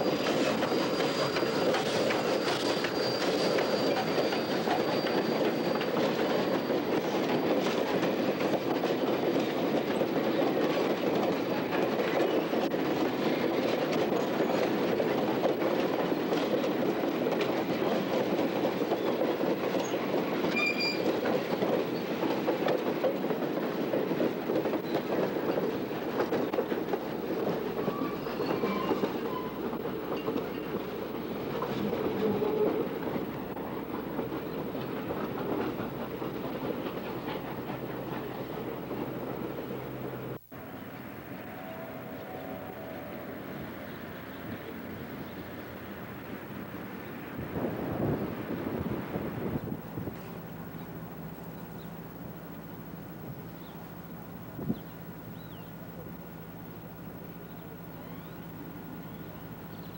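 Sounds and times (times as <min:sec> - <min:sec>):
high wheel squeal: 0:00.0 - 0:07.8, 0:19.8 - 0:21.3, 0:27.7 - 0:30.9
train wheels running on rails: 0:00.0 - 0:59.9.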